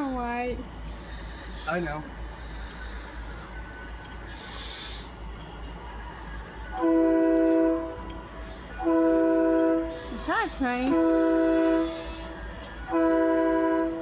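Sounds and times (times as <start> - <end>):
chord air horn blasts: 6.8 - 8.0, 8.8 - 10.0, 10.9 - 12.2, 12.9 - 14.0.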